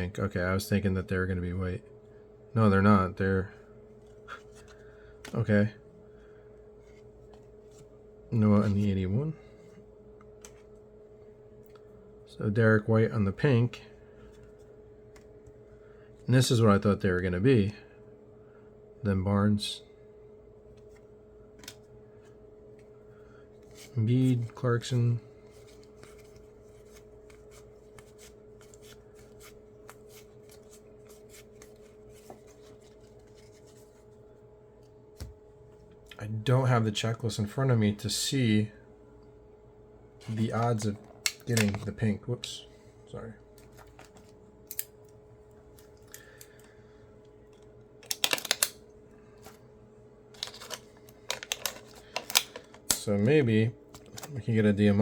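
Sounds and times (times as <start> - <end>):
faint steady hum: 0.0 - 55.0
trading cards sliding and clicking: 10.4 - 10.8, 23.6 - 34.2, 50.4 - 53.1.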